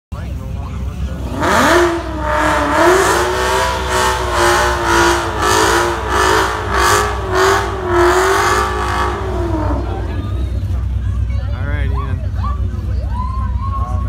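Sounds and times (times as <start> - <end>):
drag car engine at high revs: 0.8 - 11.3.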